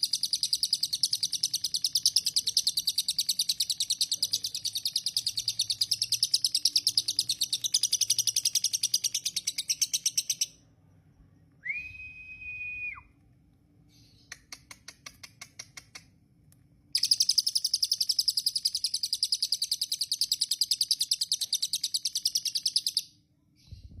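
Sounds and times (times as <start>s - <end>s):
lovebird chirping: 0.0s - 11.6s, 17.0s - 24.0s
bird whistle: 11.6s - 13.1s
quick bird clicks: 14.3s - 16.2s.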